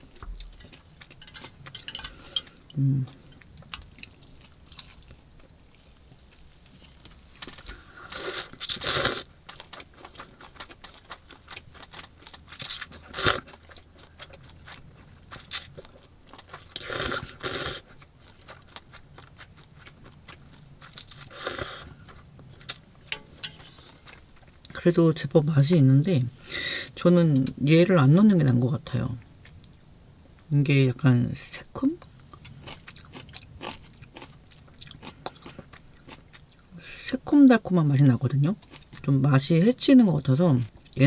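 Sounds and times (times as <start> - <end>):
crunchy bites and chewing: 32.4 - 36.5.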